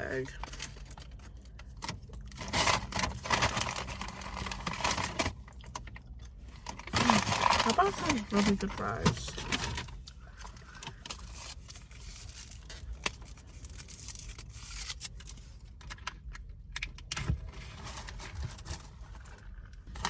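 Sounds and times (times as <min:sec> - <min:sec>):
paper packaging crinkling: 0:02.1 - 0:05.4, 0:06.6 - 0:15.5.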